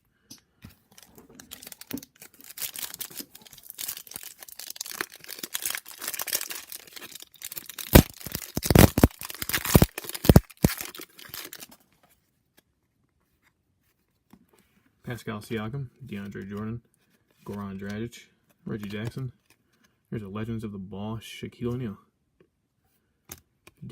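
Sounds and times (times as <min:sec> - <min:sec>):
wrapper crinkling and tearing: 0:00.9 - 0:11.9.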